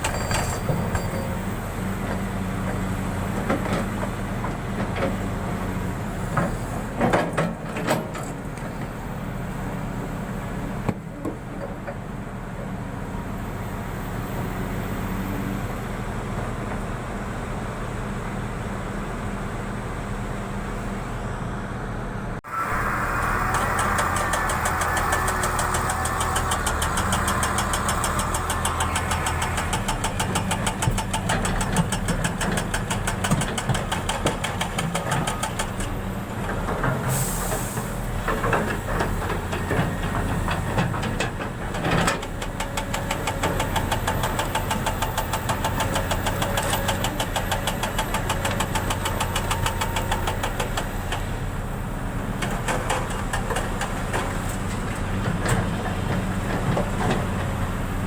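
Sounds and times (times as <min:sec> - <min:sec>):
engine running: 0:13.4 - 0:58.0.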